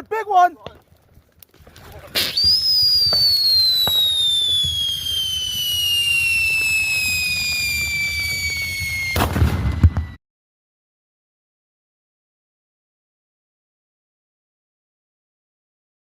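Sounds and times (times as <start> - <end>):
firework pop: 1.5 - 7.6
crackling burst of bangs: 1.5 - 10.2
firework whistle sliding down: 2.2 - 10.2.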